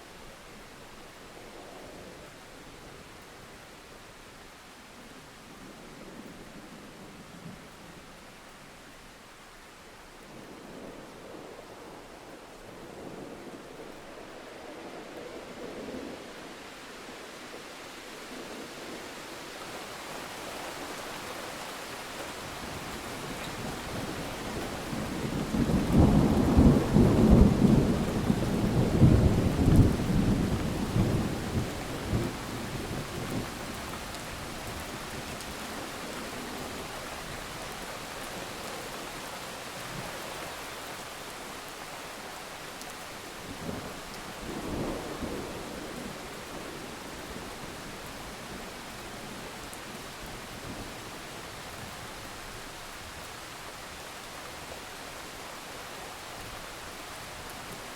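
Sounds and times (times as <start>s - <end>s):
steady rain: 0.0s - 57.9s
rolling thunder: 23.6s - 34.2s.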